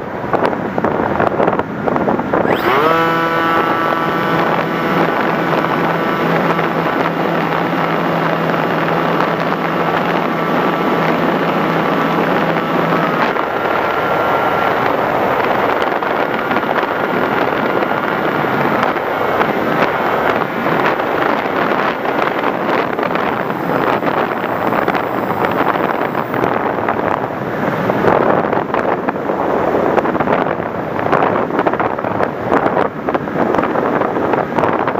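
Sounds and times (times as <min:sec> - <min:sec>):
wind rushing over microphone: 0:00.0 - 0:34.9
rc plane motor and propeller: 0:02.3 - 0:28.3.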